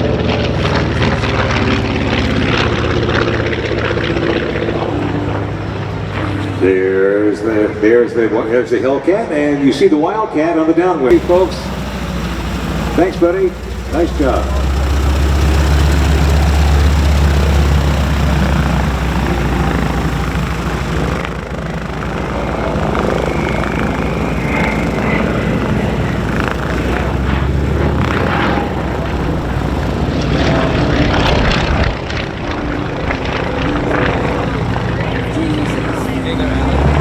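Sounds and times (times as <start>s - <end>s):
propeller plane engine droning: 11.1s - 37.0s.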